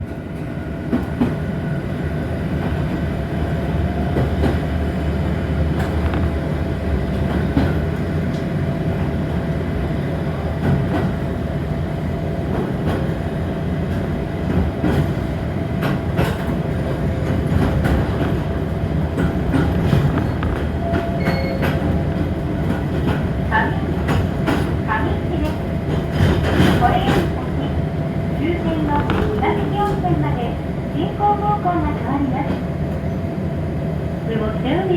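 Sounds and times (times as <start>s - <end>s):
train interior rumble: 0.0s - 34.9s
wheels clicking over rail joints: 15.8s - 27.7s.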